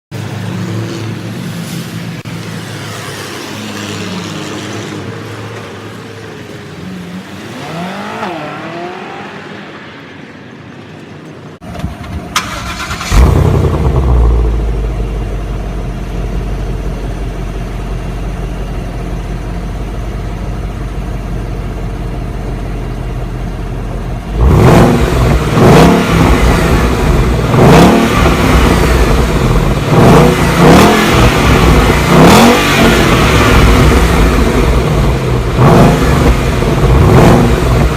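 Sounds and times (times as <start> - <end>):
car engine revving: 2.2 - 9.9, 12.3 - 17.3, 24.1 - 37.9
car engine idling: 10.8 - 37.9
car engine starting: 10.9 - 37.9.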